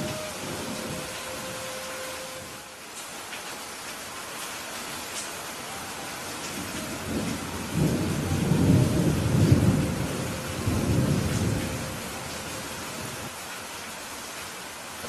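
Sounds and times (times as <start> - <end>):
steady rain: 0.0 - 15.0
rolling thunder rumble: 6.5 - 13.3.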